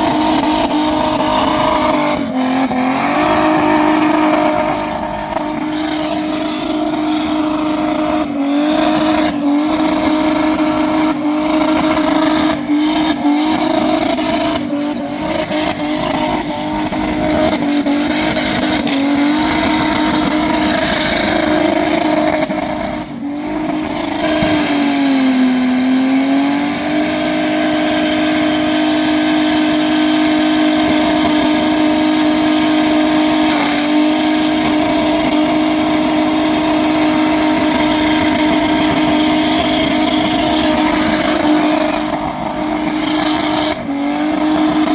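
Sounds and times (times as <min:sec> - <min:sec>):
tyres spinning: 0:00.0 - 0:26.1
car engine revving high: 0:00.0 - 0:44.9.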